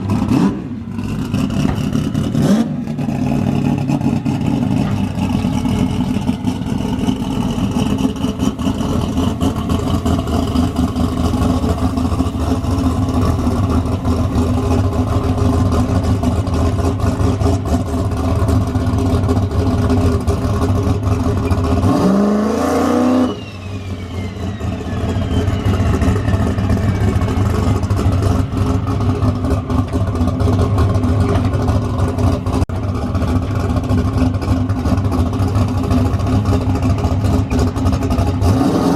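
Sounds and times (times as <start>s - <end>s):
race car engine rumbling: 0.0s - 38.9s
high whistle sliding down: 23.0s - 27.4s.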